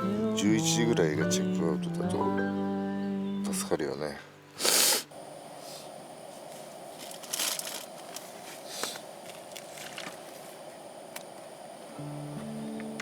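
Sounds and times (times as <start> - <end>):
steady hiss: 4.3 - 13.0
rustling and scraping handling: 5.6 - 10.6.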